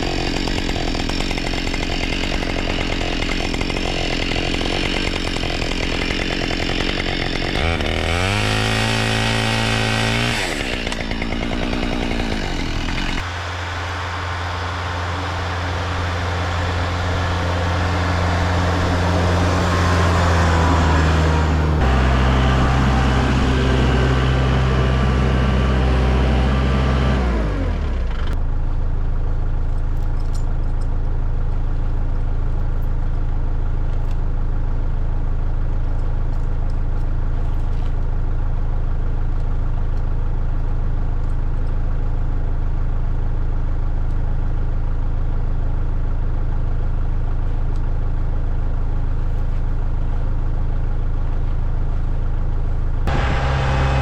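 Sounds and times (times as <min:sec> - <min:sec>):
engine revving down to idle: 0:00.0 - 0:28.4, 0:53.0 - 0:54.0.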